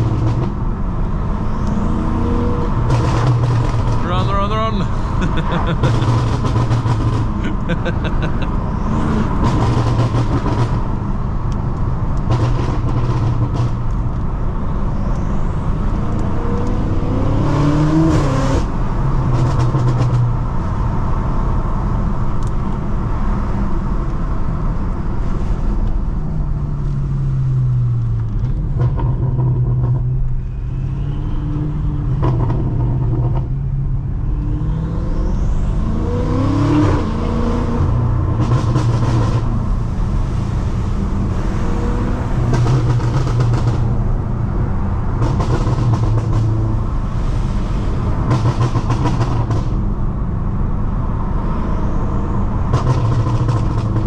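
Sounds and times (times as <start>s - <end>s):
tyre noise on wet road: 0.0s - 14.4s, 35.6s - 50.2s, 51.6s - 54.0s
car engine accelerating: 0.0s - 54.0s.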